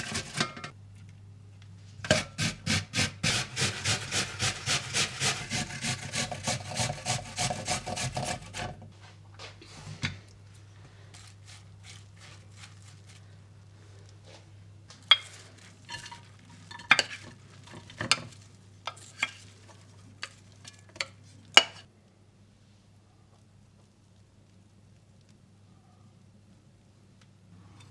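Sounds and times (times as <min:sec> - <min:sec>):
utensil stirring in bowl: 0:00.0 - 0:00.7, 0:02.1 - 0:08.8.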